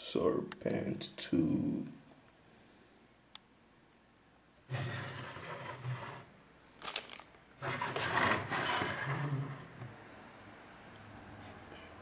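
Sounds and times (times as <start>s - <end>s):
plastic hull rubbing and scraping: 4.7s - 6.3s, 7.6s - 9.9s.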